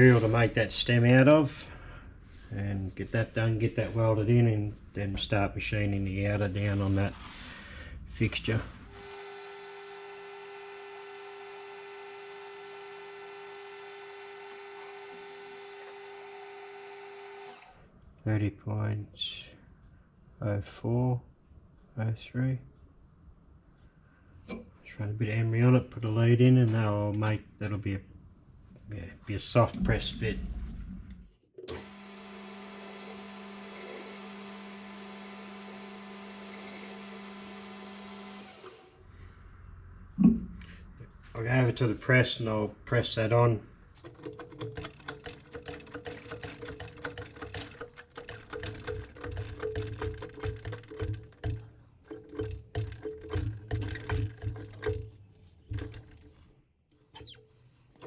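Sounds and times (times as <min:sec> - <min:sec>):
metal lathe motor hum: 0:08.9 - 0:17.8, 0:31.7 - 0:39.0
emery cloth polishing spinning metal: 0:32.1 - 0:38.7.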